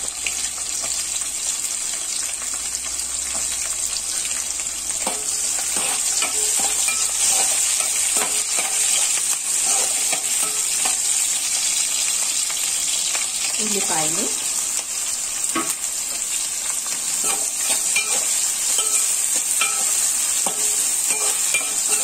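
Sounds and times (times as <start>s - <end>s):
ginger and garlic sizzling in oil: 0.0s - 22.0s
spatula scraping pan: 5.0s - 11.3s, 17.1s - 22.0s.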